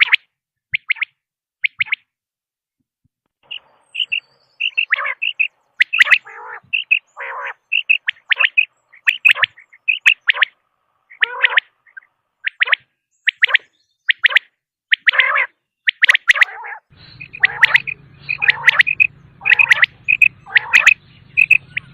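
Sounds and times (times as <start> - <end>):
quail chirping: 0.0 - 2.0, 3.4 - 21.9
low rasping bird notes: 3.4 - 12.9, 16.4 - 21.9.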